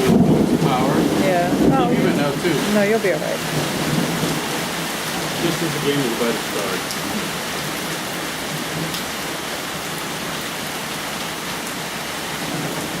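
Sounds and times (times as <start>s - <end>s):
raindrop ticks: 0.0s - 9.1s
heavy rain hissing: 0.0s - 13.0s.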